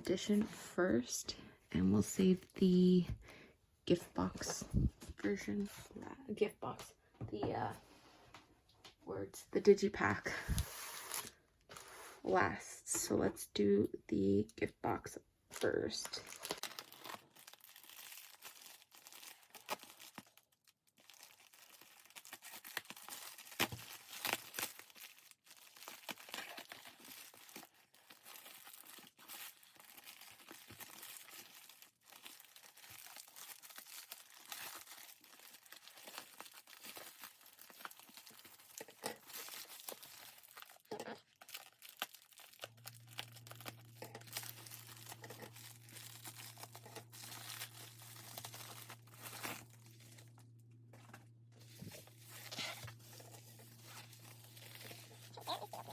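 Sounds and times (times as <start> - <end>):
packaging wrap crinkling and ripping: 15.9 - 55.9.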